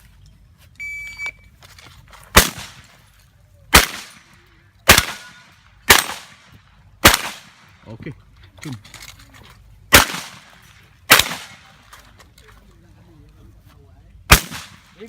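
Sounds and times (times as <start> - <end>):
shot timer beep: 0.8 - 1.4
shotgun shots with echo: 2.4 - 2.9, 3.7 - 7.7, 9.9 - 11.8, 14.3 - 15.0.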